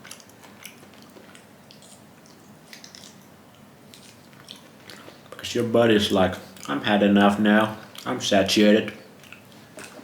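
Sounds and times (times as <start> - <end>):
wet chewing: 0.0 - 10.0.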